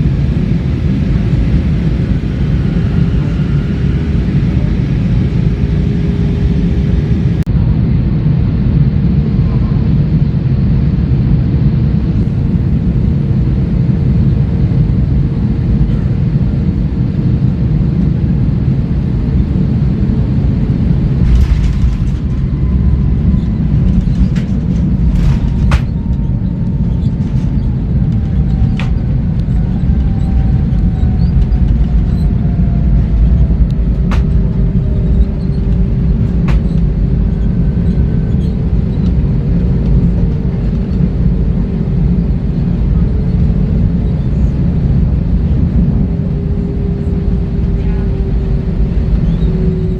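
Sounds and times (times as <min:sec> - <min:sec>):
airliner cabin rumble: 0:00.0 - 0:49.9
faint falling whine: 0:20.7 - 0:49.9.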